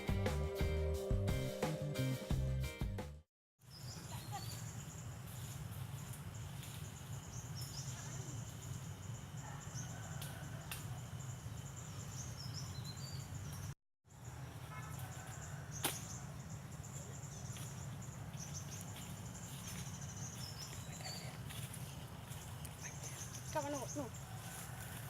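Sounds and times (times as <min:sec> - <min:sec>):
birds chirping: 0:11.2 - 0:24.3.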